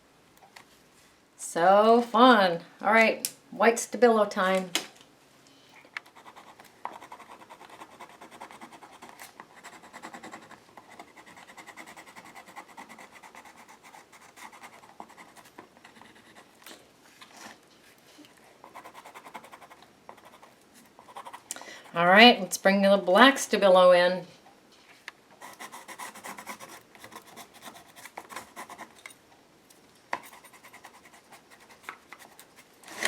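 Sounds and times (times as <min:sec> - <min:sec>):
pencil scratching on paper: 0:06.1 - 0:16.5, 0:18.6 - 0:21.4, 0:25.4 - 0:29.0, 0:30.2 - 0:32.7.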